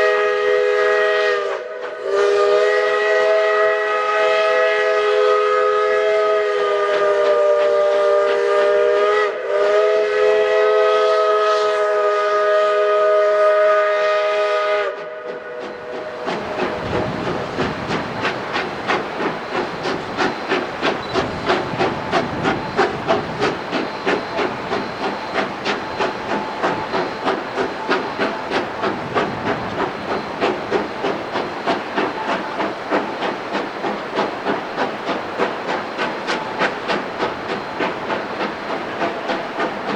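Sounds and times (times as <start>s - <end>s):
hissing steam: 0.0s - 39.9s
steam locomotive whistle: 0.0s - 39.9s
locomotive chuffing: 15.8s - 39.9s.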